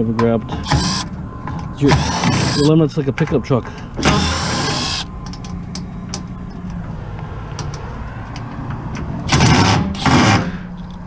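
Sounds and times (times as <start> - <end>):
loud rushing noise: 6.4 - 10.7.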